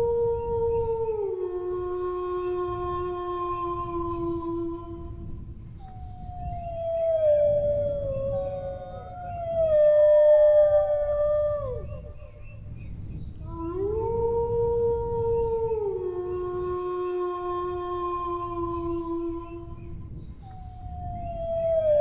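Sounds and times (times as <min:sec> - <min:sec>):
dogs howling: 0:06.0 - 0:12.5, 0:13.4 - 0:20.0, 0:20.7 - 0:22.0.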